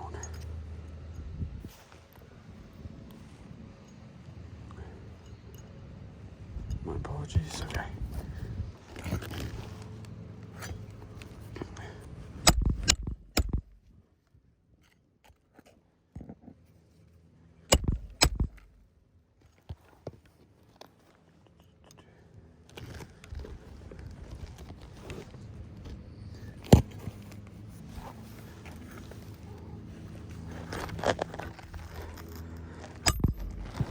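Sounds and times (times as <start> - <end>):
steady low noise: 25.3 - 33.9.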